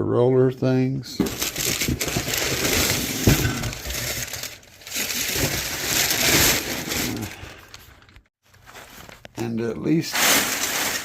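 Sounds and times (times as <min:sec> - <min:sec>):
packing paper crinkling: 0:01.3 - 0:11.0.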